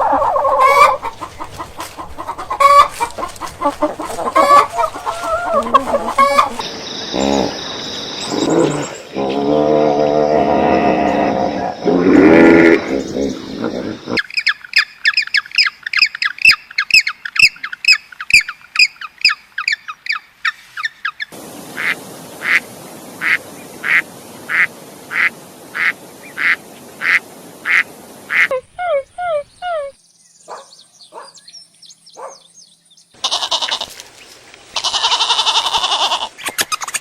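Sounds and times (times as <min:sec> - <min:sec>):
duck quacking: 0:00.0 - 0:06.6, 0:23.2 - 0:28.6, 0:34.8 - 0:36.4
rapid chirping bird calls: 0:00.0 - 0:09.4, 0:12.8 - 0:37.0
deep animal call: 0:00.0 - 0:14.2, 0:33.2 - 0:34.0, 0:34.8 - 0:36.4
steady hiss: 0:21.3 - 0:28.5.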